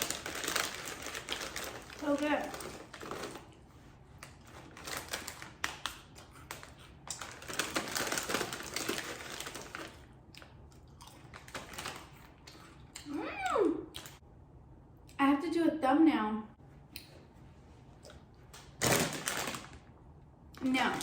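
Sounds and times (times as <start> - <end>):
chips crunching while chewed: 0.0 - 13.1.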